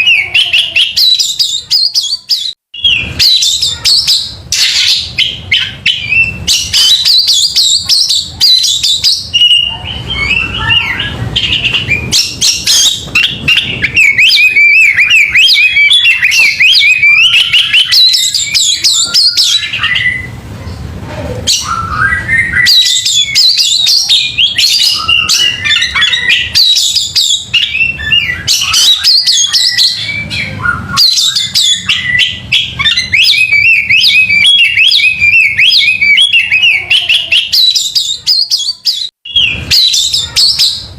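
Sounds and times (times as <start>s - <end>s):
bird singing: 0.0s - 20.4s, 21.4s - 40.9s.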